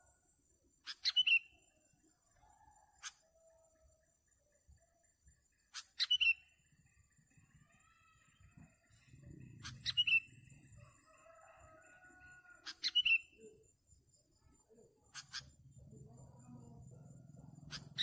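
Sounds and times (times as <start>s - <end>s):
bird sharp chirps: 0.8s - 1.6s, 5.7s - 6.6s, 9.2s - 10.6s, 12.6s - 13.6s, 15.0s - 15.6s, 17.6s - 18.0s.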